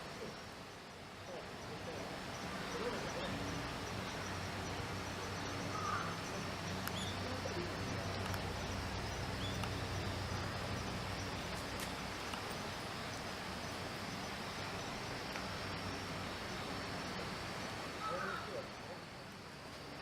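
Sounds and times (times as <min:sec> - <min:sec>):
outdoor background noise: 0:00.0 - 0:20.0
faint bird chirps: 0:01.6 - 0:12.0.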